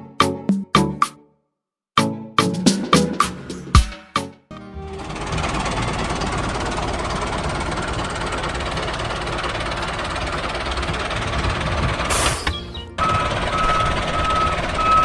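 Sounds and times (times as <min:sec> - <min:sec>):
tractor engine running: 0:04.6 - 0:15.0.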